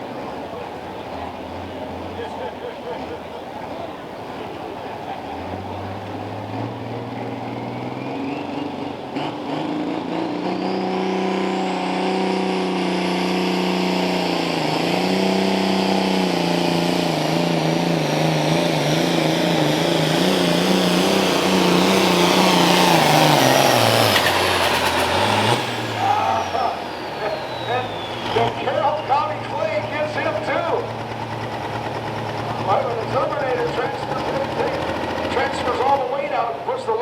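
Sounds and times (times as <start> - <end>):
diesel tractor engine revving: 0.0 - 37.0
turbo whine: 13.5 - 36.0.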